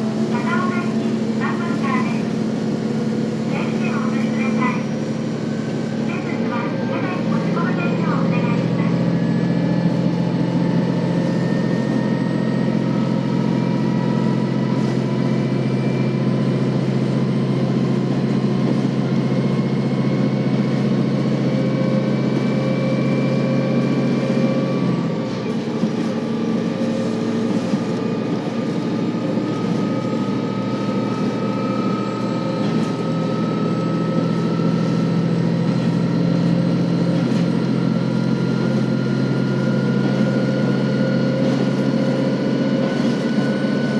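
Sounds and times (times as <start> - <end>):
diesel railcar engine drone: 0.0 - 43.9.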